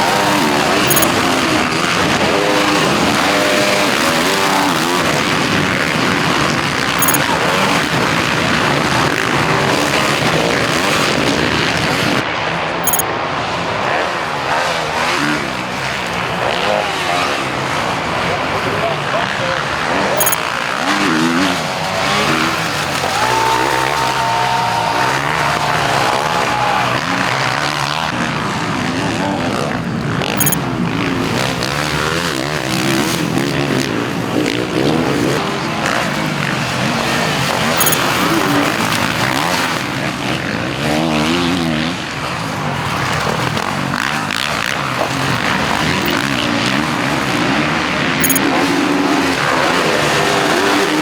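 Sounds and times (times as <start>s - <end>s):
motocross bike engines revving: 0.0s - 51.0s.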